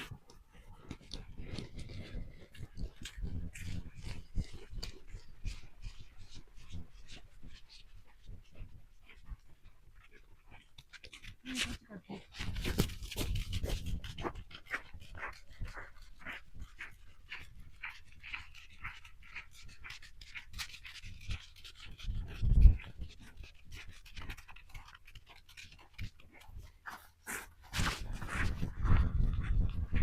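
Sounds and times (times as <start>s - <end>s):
dog panting: 0.0s - 30.0s.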